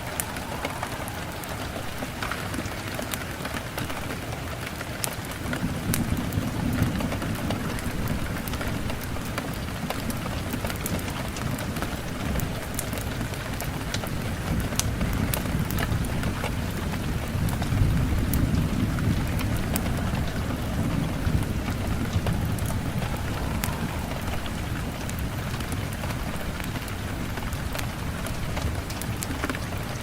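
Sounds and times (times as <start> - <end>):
low rumble: 0.0 - 3.3, 17.1 - 27.3
steady rain: 0.0 - 30.0
wood fire crackling: 0.0 - 30.0.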